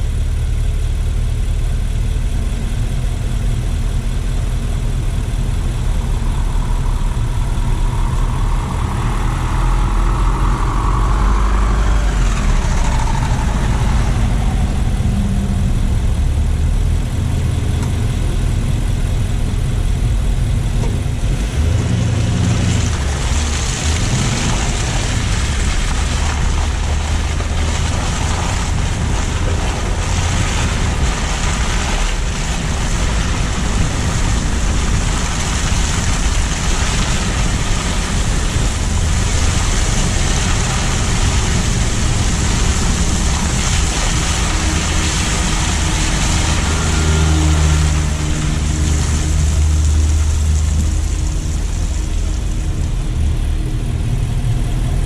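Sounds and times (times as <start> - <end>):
car engine and road rumble: 0.0 - 55.0
whine rising and falling: 4.6 - 17.9.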